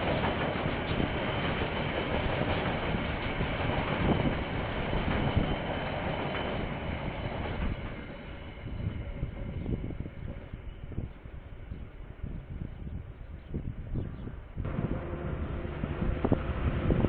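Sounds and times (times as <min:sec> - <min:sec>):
steel wheels on rails: 0:00.0 - 0:10.8, 0:14.7 - 0:17.0.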